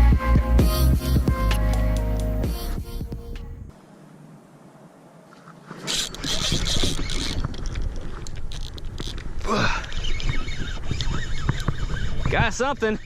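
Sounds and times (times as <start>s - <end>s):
kayak splashing and sloshing: 5.2s - 12.7s.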